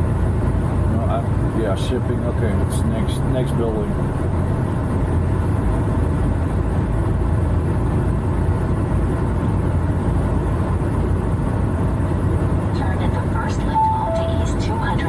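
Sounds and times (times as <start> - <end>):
truck diesel engine rumbling: 0.0 - 15.0.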